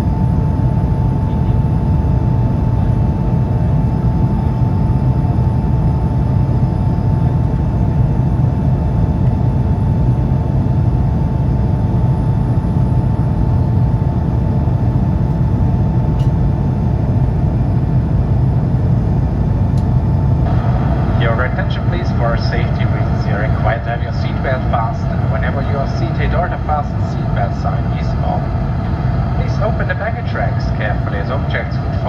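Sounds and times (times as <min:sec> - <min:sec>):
airplane cabin engine rush: 0:00.0 - 0:32.0
steady tone: 0:20.4 - 0:32.0.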